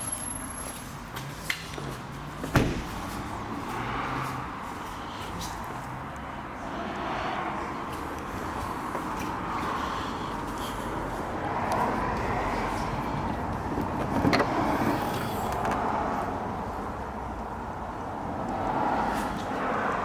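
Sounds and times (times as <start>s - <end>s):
cars passing on road: 0.0s - 20.0s.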